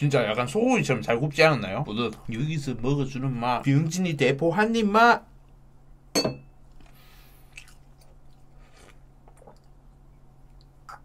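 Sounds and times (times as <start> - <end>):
faint chewing: 6.7 - 11.0
person sipping liquor: 8.4 - 9.7
soft mouth clicks: 10.5 - 11.0.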